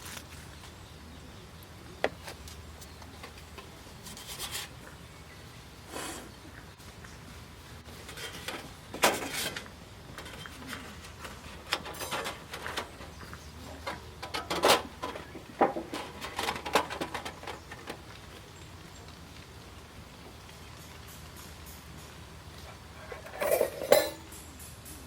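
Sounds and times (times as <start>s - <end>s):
rustling of handled objects: 2.0s - 5.0s, 7.9s - 25.0s
objects clicking and knocking: 8.0s - 18.3s, 20.8s - 25.0s.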